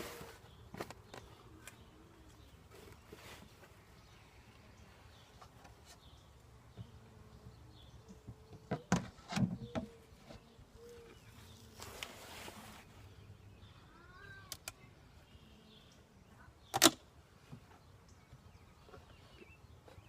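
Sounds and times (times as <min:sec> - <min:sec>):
knocks and clicks from hive: 0:08.1 - 0:10.0.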